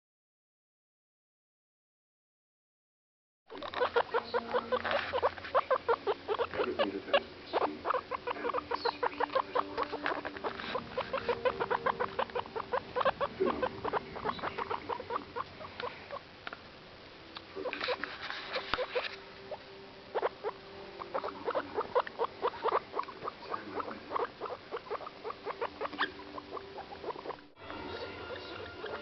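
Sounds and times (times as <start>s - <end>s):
rustling: 3.5s - 6.9s, 7.5s - 16.7s, 17.6s - 20.3s
guinea pigs clicking: 3.5s - 16.6s, 21.1s - 27.4s, 28.1s - 29.0s.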